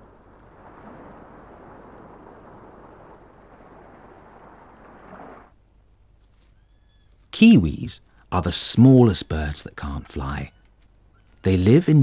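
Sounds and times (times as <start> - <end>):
underwater rushing water: 0.0 - 5.6.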